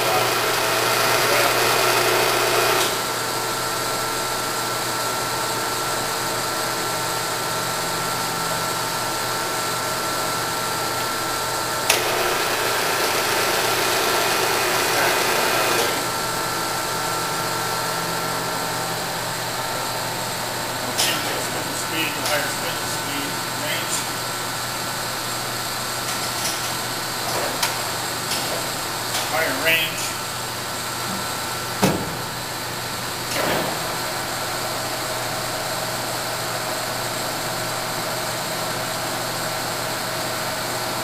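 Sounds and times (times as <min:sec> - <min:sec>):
lathe machine hum: 0:00.0 - 0:41.0
lathe saddle traverse rush: 0:11.9 - 0:16.3, 0:20.7 - 0:29.4.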